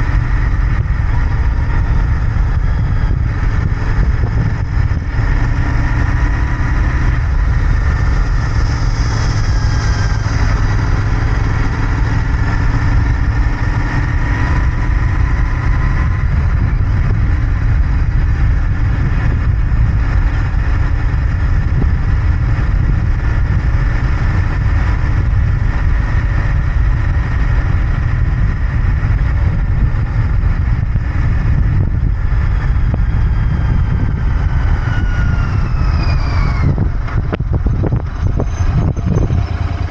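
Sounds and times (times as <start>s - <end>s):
motorcycle engine running: 0.0s - 39.9s
high tone sliding down: 34.3s - 39.9s.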